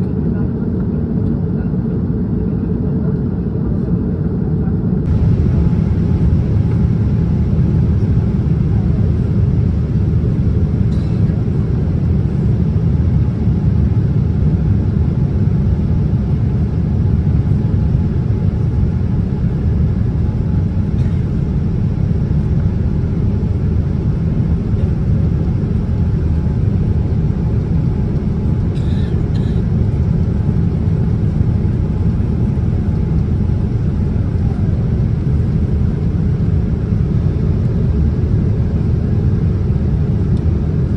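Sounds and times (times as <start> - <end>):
airliner cabin rumble: 0.0 - 40.9.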